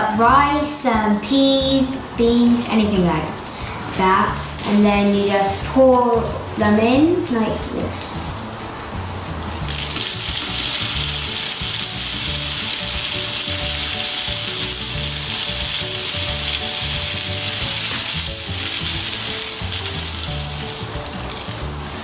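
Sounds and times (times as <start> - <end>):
rice pouring into cardboard tube: 9.7 - 22.0.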